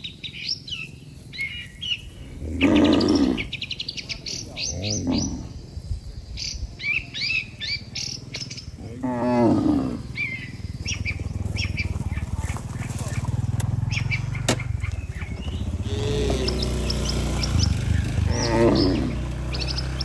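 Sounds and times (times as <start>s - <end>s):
small birds chirping: 0.0s - 20.0s
cattle mooing: 2.3s - 3.6s, 4.6s - 5.6s, 8.8s - 12.0s, 15.4s - 20.0s.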